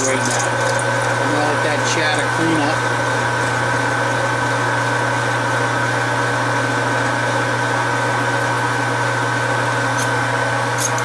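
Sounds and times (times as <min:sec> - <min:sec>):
metal lathe running: 0:00.0 - 0:11.0.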